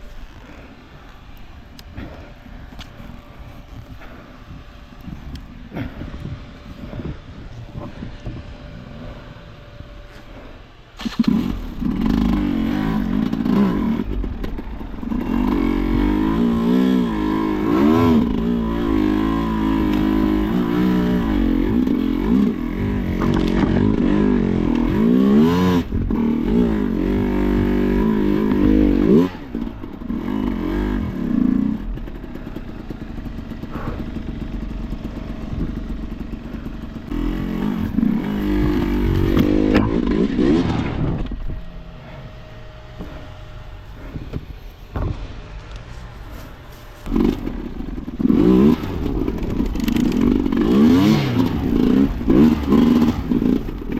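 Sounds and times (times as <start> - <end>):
dirt bike engine revving: 10.3 - 44.6, 46.4 - 53.9.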